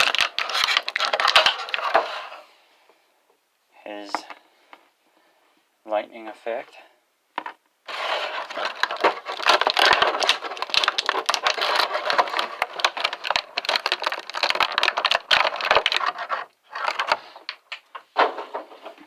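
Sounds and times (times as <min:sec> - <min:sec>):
plastic packaging crinkling: 0:00.0 - 0:02.4, 0:07.8 - 0:18.3.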